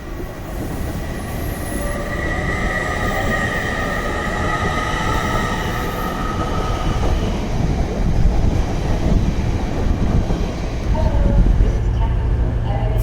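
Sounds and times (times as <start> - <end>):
train rumble: 0.0 - 13.0
train wheel squeal: 0.4 - 8.2.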